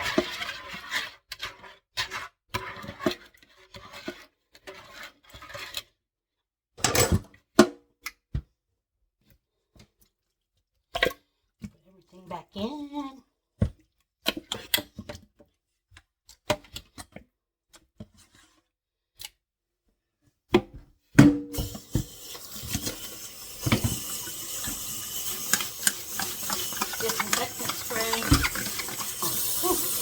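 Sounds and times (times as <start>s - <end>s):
tap water running into sink: 21.5s - 30.0s.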